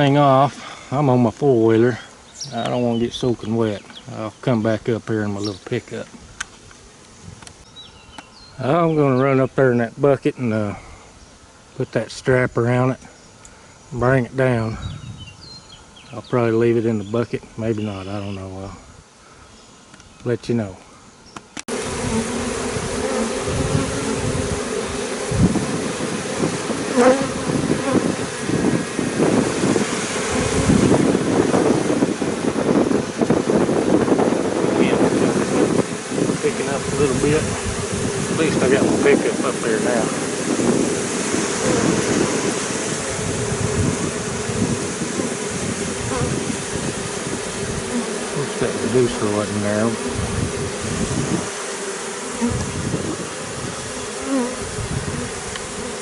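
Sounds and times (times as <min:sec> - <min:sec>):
bee swarm buzzing: 0:00.0 - 0:56.0
strong wind buffeting microphone: 0:14.0 - 0:15.6, 0:21.7 - 0:51.6, 0:52.4 - 0:56.0
single bees flying past: 0:21.3 - 0:56.0.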